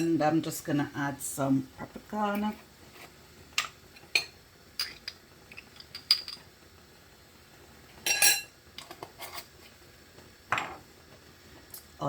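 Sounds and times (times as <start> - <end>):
kitchen utensils clinking: 3.6 - 6.5, 8.0 - 9.5.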